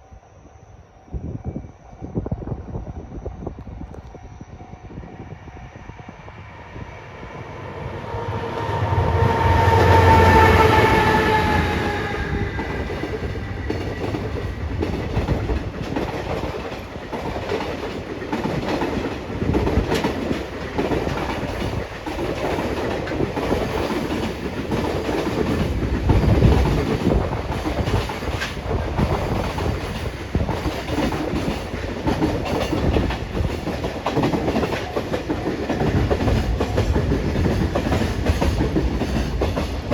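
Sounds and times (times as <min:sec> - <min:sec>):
train wheels rumbling on rails: 0:02.2 - 0:39.9
clickety-clack over rail joints: 0:09.2 - 0:39.9.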